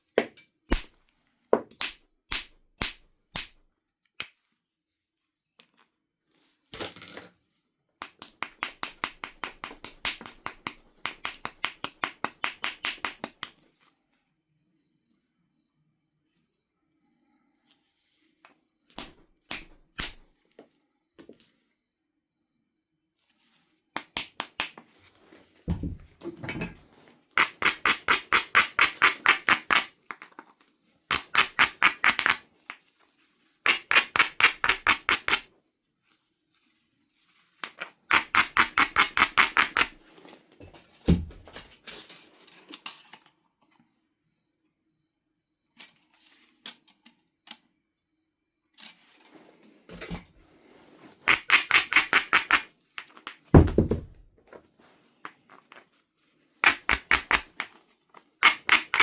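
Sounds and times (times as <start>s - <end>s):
dull knocks: 53.6s - 54.2s.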